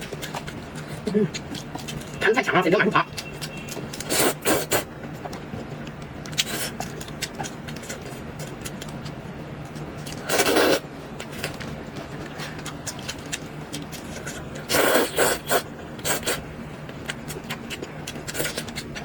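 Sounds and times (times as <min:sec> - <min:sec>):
slurping noodles: 0:04.0 - 0:04.9, 0:10.3 - 0:10.8, 0:14.6 - 0:16.4.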